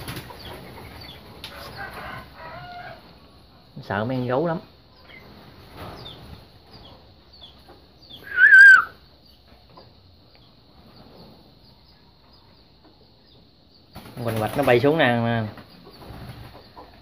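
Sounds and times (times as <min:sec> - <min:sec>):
faint high chirps: 0:06.1 - 0:13.8
loud wavering bird call: 0:08.1 - 0:09.1.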